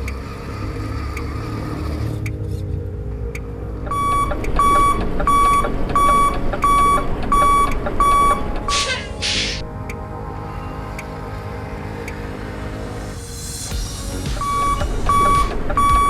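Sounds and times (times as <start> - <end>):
reversing beeper: 3.9 - 9.7, 14.4 - 16.0.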